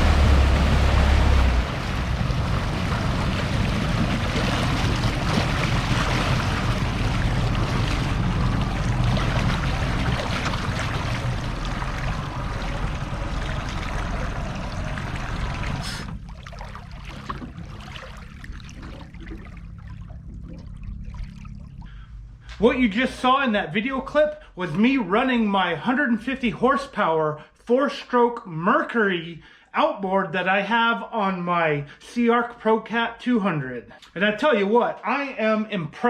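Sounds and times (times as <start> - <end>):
rush of wind and water: 0.0 - 21.5
water trickling: 0.0 - 22.1
outboard engine drone: 0.0 - 23.2.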